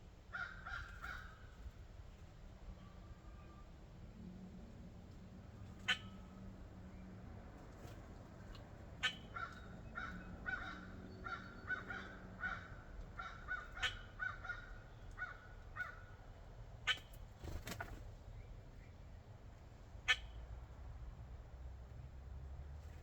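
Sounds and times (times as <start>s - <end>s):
bird harsh calls: 0.3s - 1.5s, 5.8s - 6.4s, 9.0s - 16.2s, 20.1s - 20.4s.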